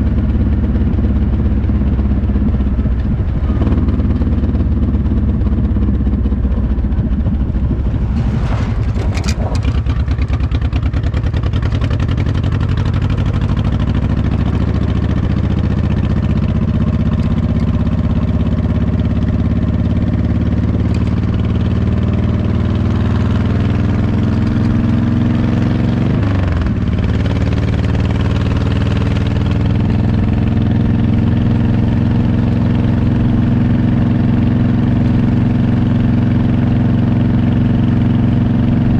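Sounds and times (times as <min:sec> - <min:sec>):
motorcycle engine accelerating: 0:00.0 - 0:38.9
brief clatter: 0:07.8 - 0:10.6.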